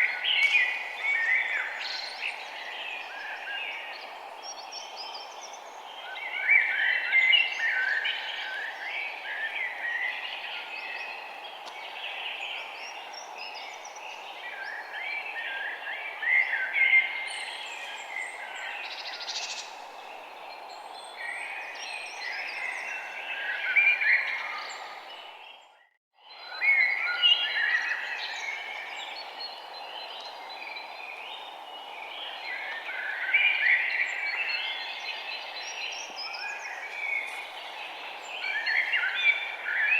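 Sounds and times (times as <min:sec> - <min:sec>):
birds chirping: 0:27.4 - 0:39.9.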